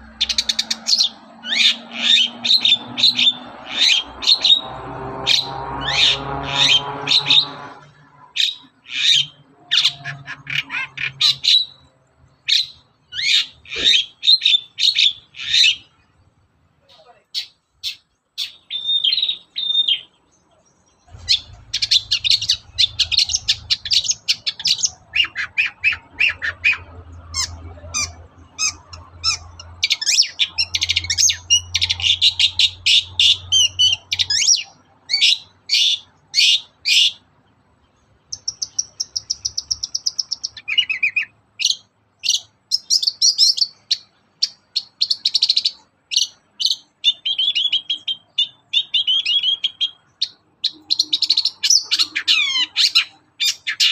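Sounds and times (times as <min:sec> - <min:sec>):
scratchy bird chatter: 0:00.0 - 0:16.1, 0:20.9 - 0:37.3, 0:38.1 - 0:53.9
bird singing sharp chips: 0:17.3 - 0:37.3, 0:38.2 - 0:53.9.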